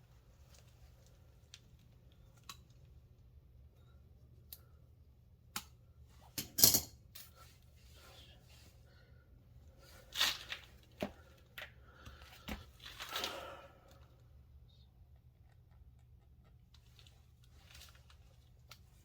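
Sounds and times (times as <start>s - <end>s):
rustling tearing scrapes: 9.8s - 11.0s.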